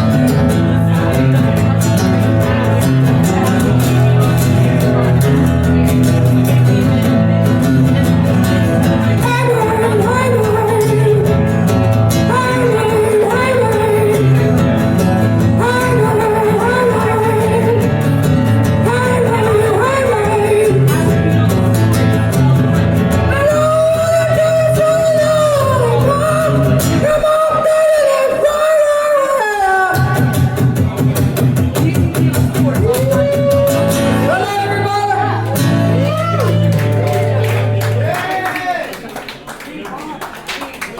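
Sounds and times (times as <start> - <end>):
guitar-led backing music: 0.0 - 38.6
person singing: 9.0 - 22.4, 23.3 - 30.8.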